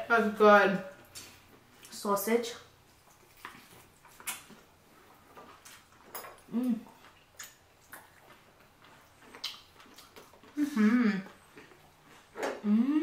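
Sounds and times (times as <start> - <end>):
wet mouth clicks and chewing: 3.0 - 10.6.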